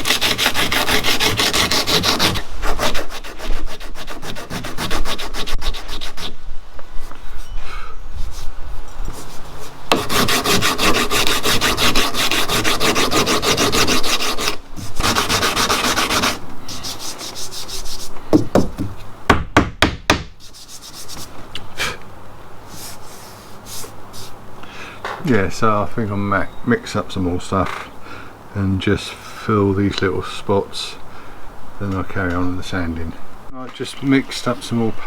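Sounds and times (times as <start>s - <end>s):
sandpaper rubbing back and forth: 0.0s - 6.4s, 8.2s - 18.2s, 20.4s - 21.4s, 22.7s - 24.4s.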